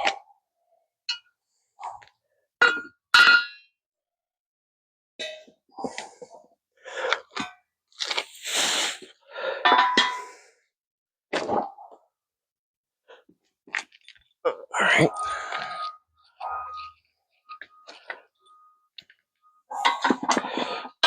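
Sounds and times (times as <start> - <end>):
metal scraping: 15.0 - 18.9.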